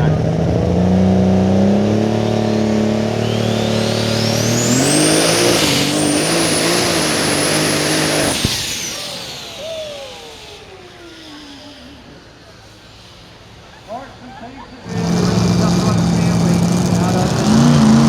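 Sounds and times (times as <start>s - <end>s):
engine running hard with whine: 0.0s - 18.0s
sharp crack: 1.8s - 11.7s.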